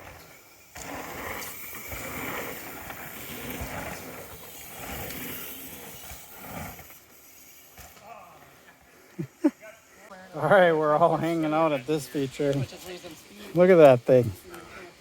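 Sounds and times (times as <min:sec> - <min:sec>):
bike tyre rumble on dirt: 0:00.0 - 0:08.8.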